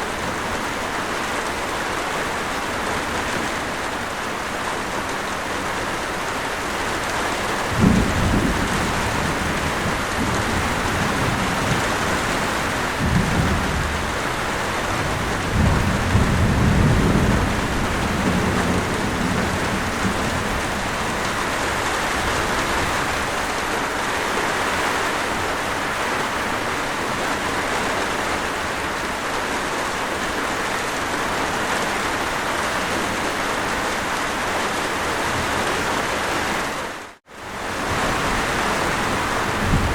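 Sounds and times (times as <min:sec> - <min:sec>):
steady rain: 0:00.0 - 0:39.9
thunder rumbling: 0:07.3 - 0:23.5, 0:37.6 - 0:39.9.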